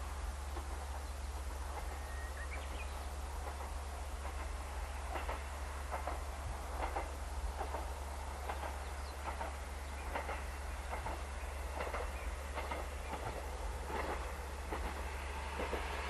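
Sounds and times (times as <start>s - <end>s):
railcar low rumble: 0.0s - 16.0s
wheels clicking over rail joints: 1.7s - 15.9s.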